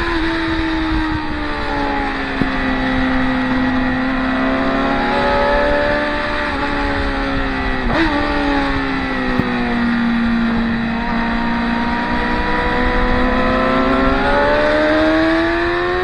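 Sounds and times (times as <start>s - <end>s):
racing motorcycle engines: 0.0s - 16.0s.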